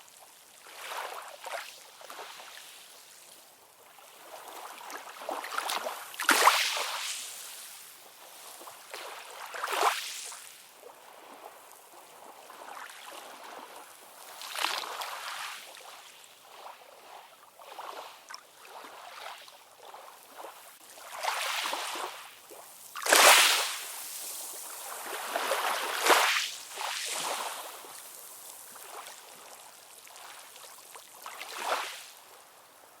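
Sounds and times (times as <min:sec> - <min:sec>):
waves washing in: 0:20.9 - 0:30.6.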